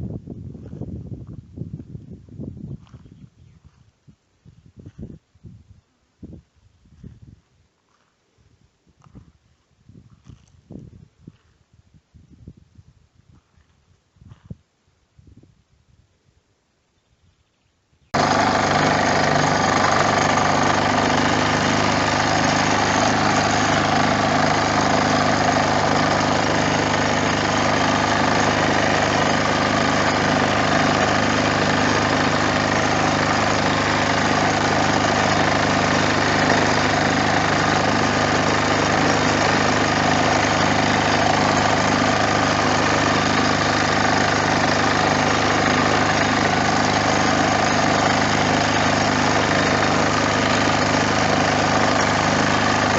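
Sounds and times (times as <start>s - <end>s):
diesel engine running steadily: 18.2s - 52.9s.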